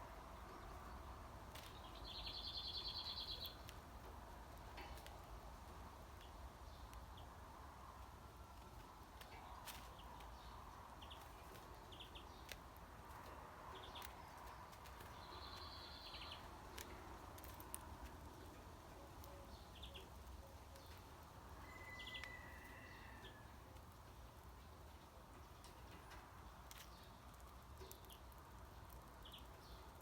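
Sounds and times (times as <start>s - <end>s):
songbird chirps and whistles: 21.6s - 23.2s.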